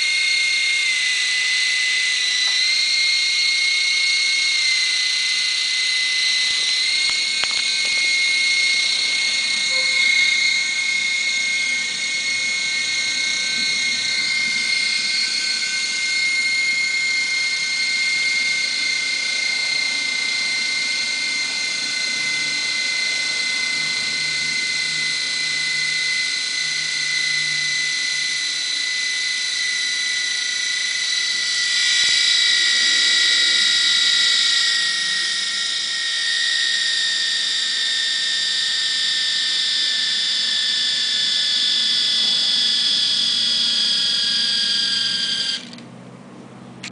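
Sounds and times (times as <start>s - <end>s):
electric motors whining: 0.0s - 46.0s, 46.7s - 46.9s.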